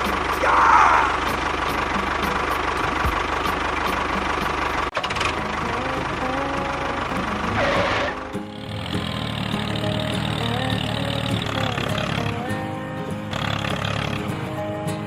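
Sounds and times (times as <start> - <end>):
small motor ticking: 8.2 - 12.5, 13.3 - 14.3.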